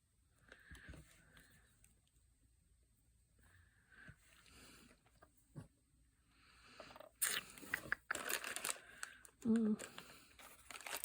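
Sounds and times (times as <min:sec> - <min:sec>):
rustling of craft materials: 0:06.8 - 0:11.0.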